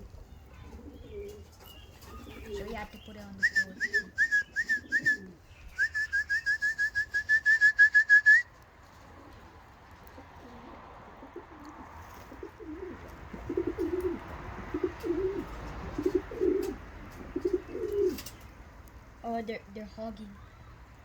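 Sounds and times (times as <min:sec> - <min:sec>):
pigeons cooing: 0:00.0 - 0:06.0, 0:09.0 - 0:18.5
pigeons chirping: 0:00.0 - 0:07.3, 0:08.8 - 0:19.0.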